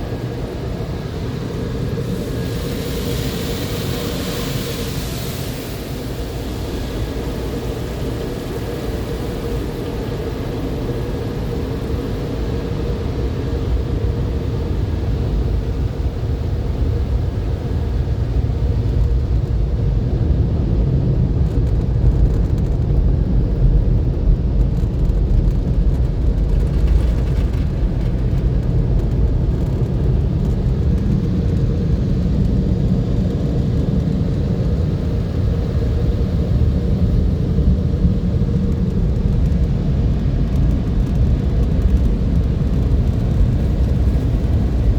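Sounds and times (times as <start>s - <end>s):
car wash equipment rumbling: 17.9s - 36.0s.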